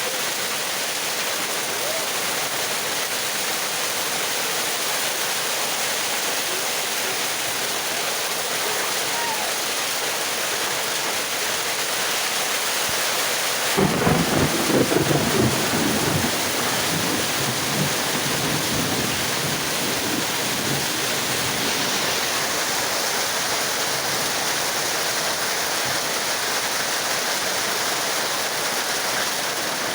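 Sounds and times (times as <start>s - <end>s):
heavy rain: 0.0s - 29.9s
thunder rumbling: 13.8s - 24.8s.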